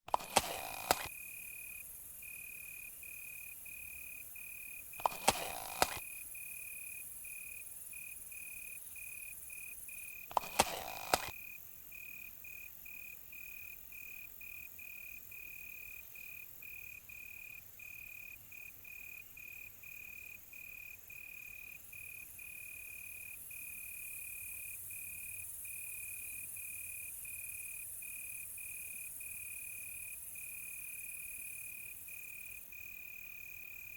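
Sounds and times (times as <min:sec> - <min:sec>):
high hiss of insects: 0:00.1 - 0:12.6
crickets chirping: 0:00.1 - 0:33.9.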